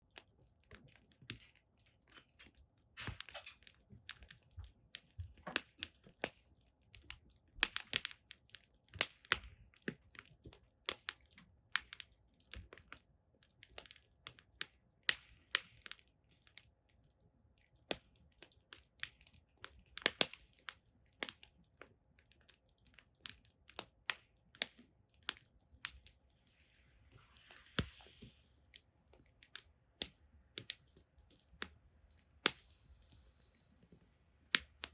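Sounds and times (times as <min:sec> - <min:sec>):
firewood crackling and popping: 0:00.0 - 0:34.9
soft hiss: 0:26.1 - 0:34.9.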